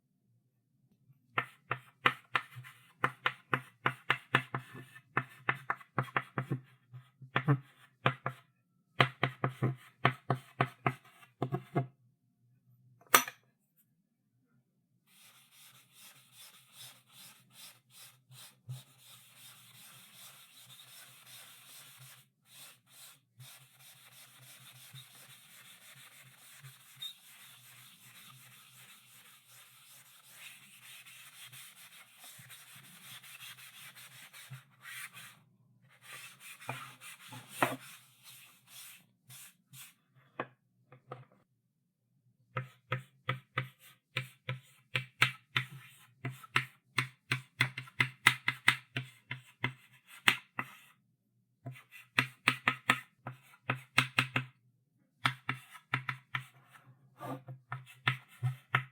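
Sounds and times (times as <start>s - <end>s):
chalk striking board: 1.4s - 6.6s, 15.1s - 35.3s, 36.0s - 39.9s, 42.6s - 50.8s, 55.2s - 56.5s
chalk scratching on blackboard: 15.1s - 40.0s.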